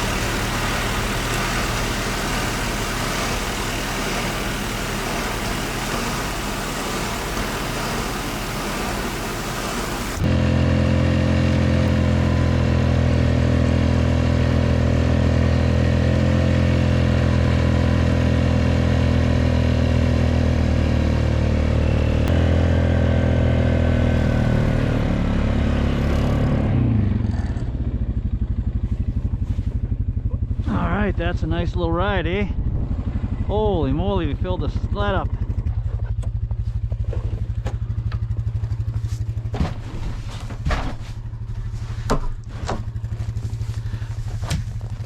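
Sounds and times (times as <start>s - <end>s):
even hiss: 0.0s - 10.2s
atv engine running: 0.0s - 45.0s.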